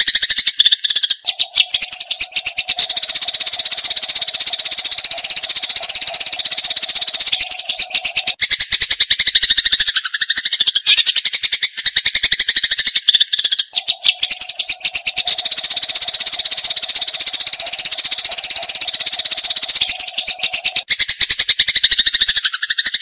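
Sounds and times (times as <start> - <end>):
sparrow chattering: 0.0 - 23.0.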